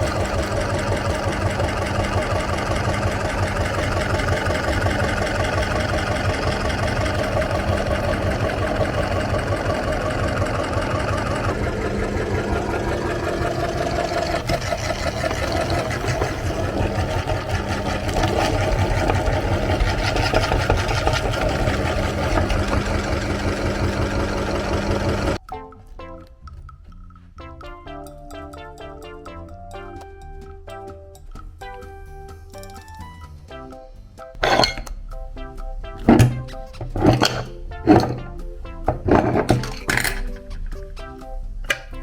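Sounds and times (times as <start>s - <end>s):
electric meat grinder running: 0.0s - 25.4s.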